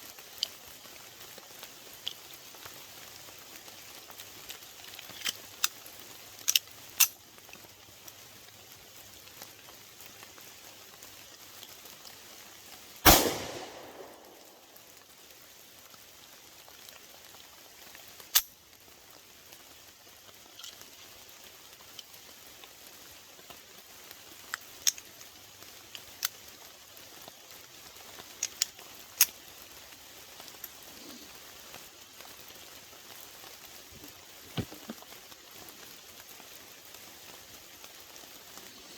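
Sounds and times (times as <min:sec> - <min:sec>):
rain patter: 0:00.0 - 0:38.9
pistol gunshot: 0:13.1 - 0:14.6.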